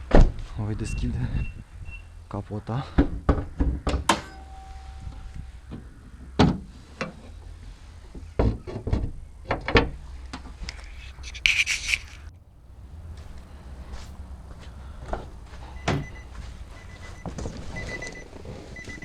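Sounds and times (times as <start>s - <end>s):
scraping squeak: 10.9s - 19.0s
car bonnet latch clunks: 11.2s - 19.0s.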